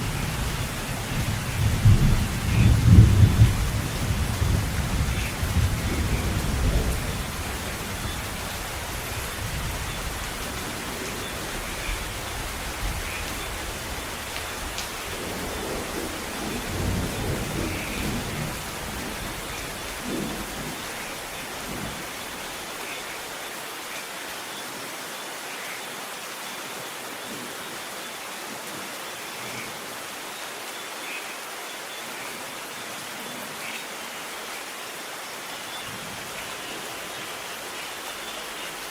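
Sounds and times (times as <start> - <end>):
rolling thunder: 0.0 - 8.5, 15.0 - 20.9
steady rain: 0.0 - 38.9.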